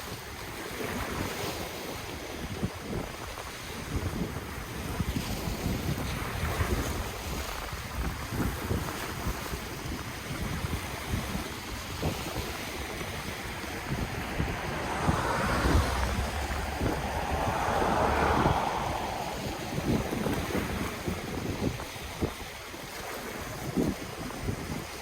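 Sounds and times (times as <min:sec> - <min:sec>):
wind buffeting microphone: 0:03.8 - 0:25.0
ocean waves washing on shore: 0:09.8 - 0:25.0.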